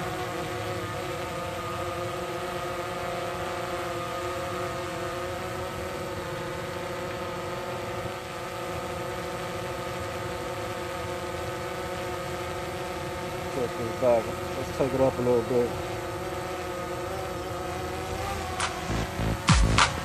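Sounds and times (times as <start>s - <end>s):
drone propellers buzzing: 17.0s - 20.0s.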